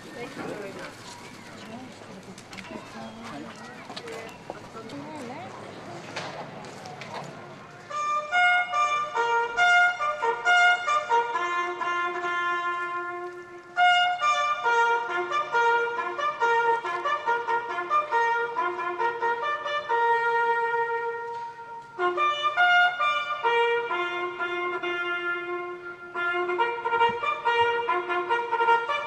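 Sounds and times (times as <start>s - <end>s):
solo trumpet melody: 7.8s - 29.0s.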